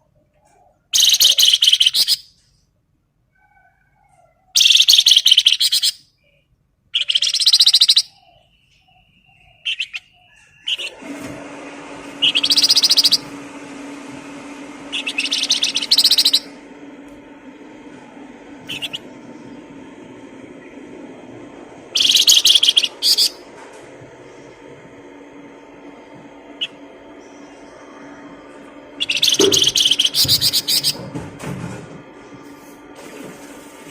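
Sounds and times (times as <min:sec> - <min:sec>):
soft bird calls: 0:00.3 - 0:02.6, 0:03.3 - 0:10.9, 0:12.1 - 0:13.3, 0:14.9 - 0:16.6, 0:18.7 - 0:19.5, 0:21.9 - 0:23.4, 0:26.5 - 0:31.0
songbird trilling: 0:01.0 - 0:02.3, 0:04.6 - 0:06.0, 0:07.0 - 0:10.9, 0:12.2 - 0:13.2, 0:14.9 - 0:16.5, 0:18.7 - 0:19.0, 0:22.0 - 0:23.4, 0:29.0 - 0:31.0.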